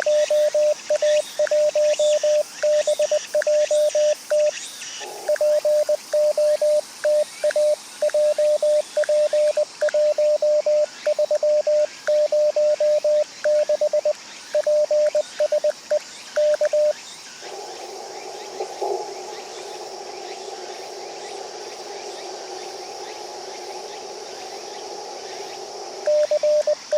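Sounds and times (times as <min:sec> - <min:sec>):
radio receiver hiss: 0:05.0 - 0:26.9
morse code tone keying: 0:26.1 - 0:26.9.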